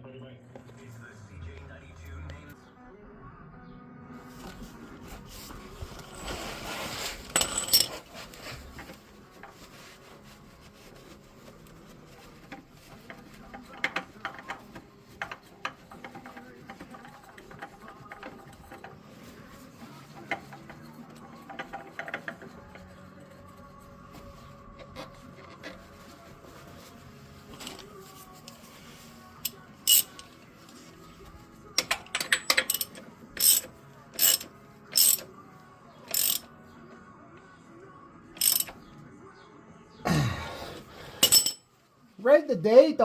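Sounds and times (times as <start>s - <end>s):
tools and parts clicking: 7.3s - 9.6s, 12.4s - 19.0s, 20.0s - 23.7s, 29.4s - 30.4s, 31.8s - 35.3s, 36.1s - 36.5s, 38.4s - 38.8s, 41.2s - 41.6s.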